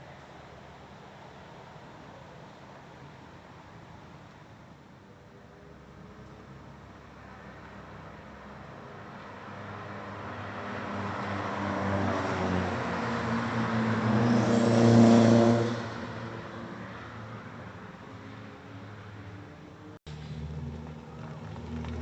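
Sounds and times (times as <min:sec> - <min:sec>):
car driving past: 0:10.1 - 0:16.8, 0:20.0 - 0:22.0.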